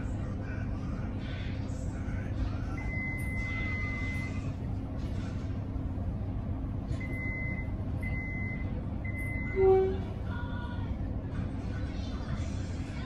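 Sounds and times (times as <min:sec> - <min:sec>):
electric train rumble and hum: 0:00.0 - 0:13.0
short low tone: 0:07.0 - 0:10.3.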